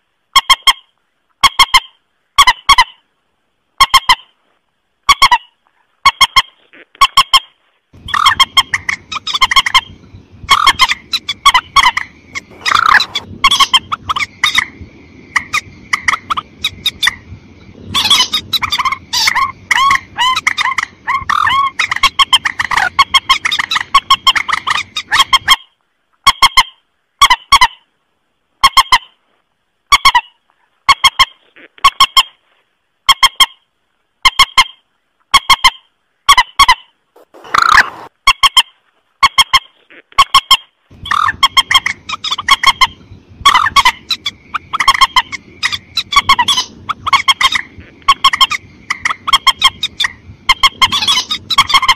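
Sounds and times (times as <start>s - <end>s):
low hiss: 0.0s - 26.2s, 27.8s - 36.3s, 36.9s - 38.2s
waterbird honking calls: 7.1s - 14.7s, 17.9s - 25.6s, 36.6s - 38.1s, 40.4s - 51.9s.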